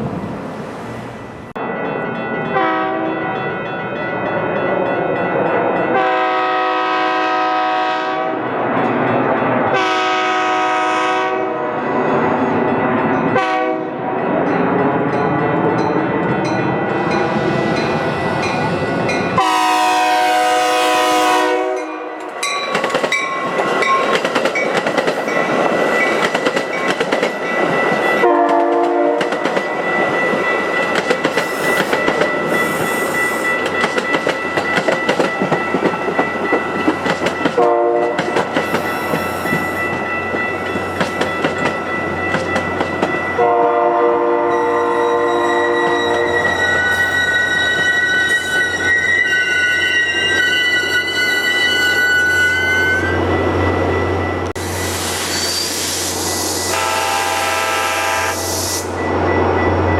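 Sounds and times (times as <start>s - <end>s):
train horn blasts: 2.5s - 3.2s, 5.9s - 8.4s, 9.7s - 11.8s, 13.4s - 14.1s, 19.4s - 22.3s, 28.2s - 29.3s, 37.6s - 38.3s, 43.4s - 46.6s, 56.6s - 59.0s
train wheels clattering: 22.2s - 43.4s
high-pitched squeal: 44.5s - 56.9s.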